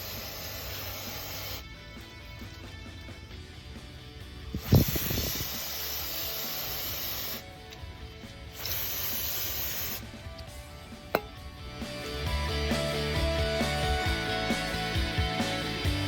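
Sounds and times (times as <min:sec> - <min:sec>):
loud even hissing: 0:00.0 - 0:01.6, 0:04.5 - 0:07.5, 0:08.5 - 0:10.2
background music: 0:00.2 - 0:16.0.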